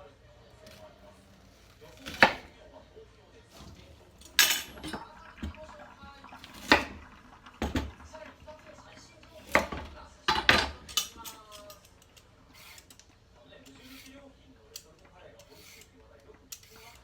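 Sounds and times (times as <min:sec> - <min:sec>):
kitchen utensils clanking: 0:03.5 - 0:13.1, 0:13.7 - 0:17.0.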